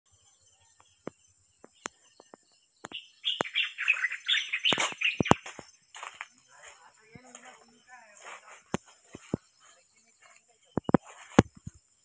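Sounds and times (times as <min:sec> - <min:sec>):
small birds chirping: 0:00.1 - 0:12.0
sharp clicks: 0:01.1 - 0:03.6.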